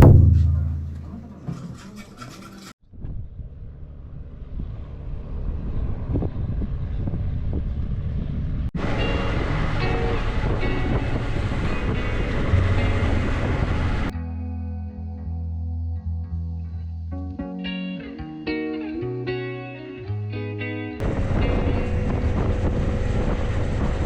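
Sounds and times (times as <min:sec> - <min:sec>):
moving vehicle rumble: 0:00.0 - 0:14.1, 0:21.0 - 0:24.0
wind rushing over microphone: 0:04.4 - 0:14.1, 0:21.0 - 0:24.0.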